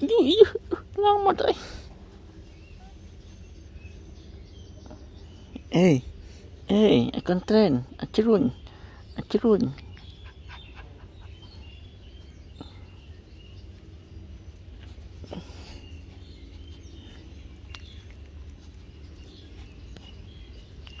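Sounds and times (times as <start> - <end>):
low steady rumble: 0.0 - 21.0
faint bird chirps: 2.4 - 21.0
rustle: 10.2 - 21.0.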